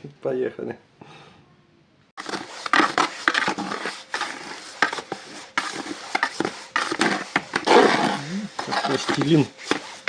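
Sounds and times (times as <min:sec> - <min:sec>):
mortar scooped and packed by hand: 0:02.2 - 0:10.0.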